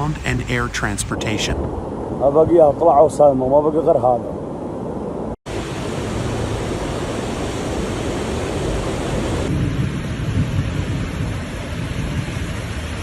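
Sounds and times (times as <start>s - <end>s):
heavy rain: 5.5s - 13.0s
rushing floodwater: 5.5s - 13.0s.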